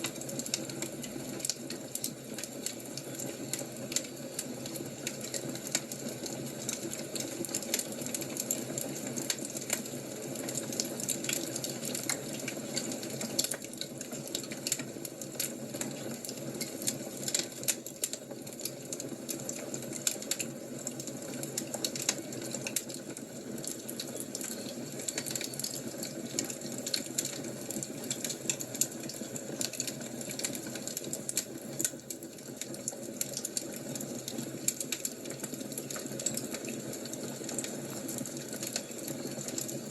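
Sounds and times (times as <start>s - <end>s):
fire crackling: 0.0s - 39.9s.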